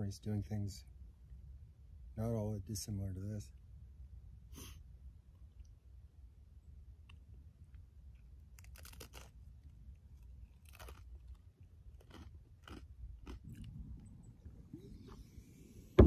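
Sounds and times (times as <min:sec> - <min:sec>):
faint low rumble: 0:00.0 - 0:16.0
crisp crunches of chewing: 0:07.0 - 0:15.2.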